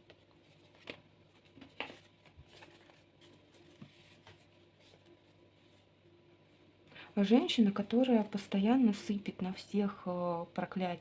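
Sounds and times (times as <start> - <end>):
cards tapping and rustling: 0.0 - 5.0.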